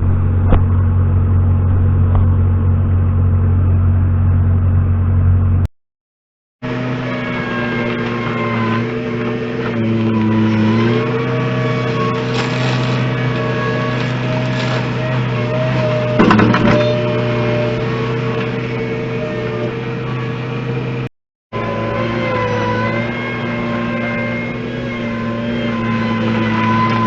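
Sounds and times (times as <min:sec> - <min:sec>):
heavy machine engine running: 0:00.0 - 0:05.7, 0:06.6 - 0:27.0.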